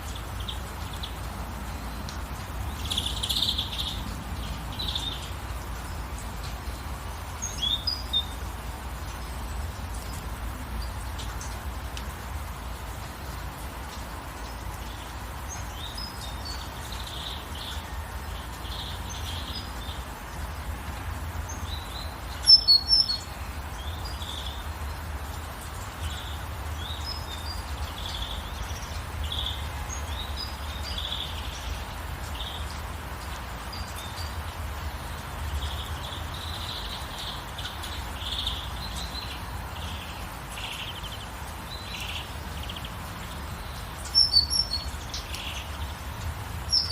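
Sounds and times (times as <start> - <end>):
gentle rain hiss: 0.0 - 46.9
songbirds chirping and singing: 33.6 - 46.9.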